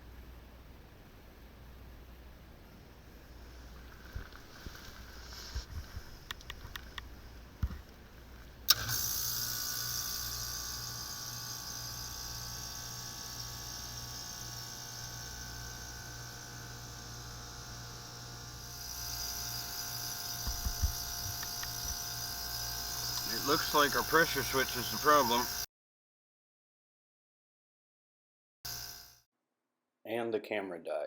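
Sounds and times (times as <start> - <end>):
compressor and fan humming: 0.0 - 25.7
sharp relay click: 8.7 - 10.5.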